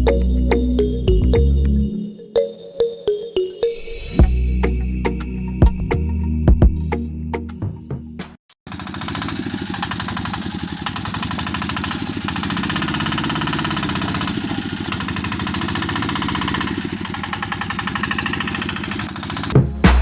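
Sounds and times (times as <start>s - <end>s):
small motor gear rattle: 8.7s - 19.6s.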